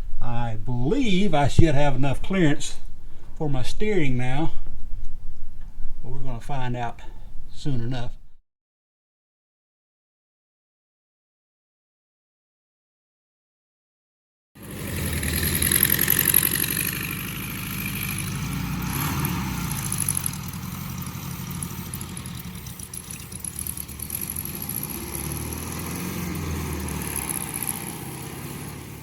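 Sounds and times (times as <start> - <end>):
car engine idling: 0.0 - 8.4, 14.6 - 29.0.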